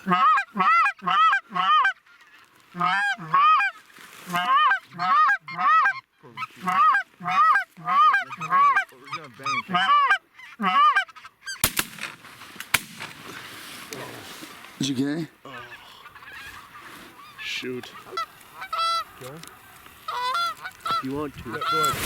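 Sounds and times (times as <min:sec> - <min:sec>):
geese yelping calls: 0:00.0 - 0:11.7, 0:15.4 - 0:22.0
shotgun shot: 0:11.6 - 0:13.2.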